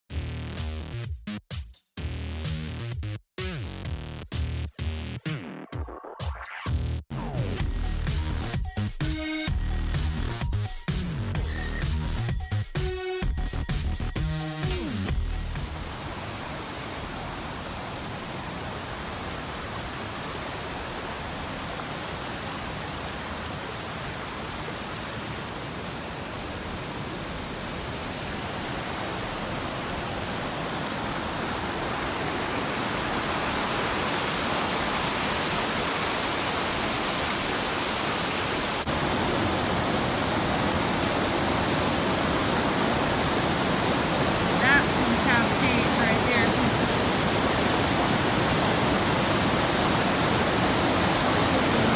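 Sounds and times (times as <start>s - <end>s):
mountain stream rushing water: 15.6s - 51.9s.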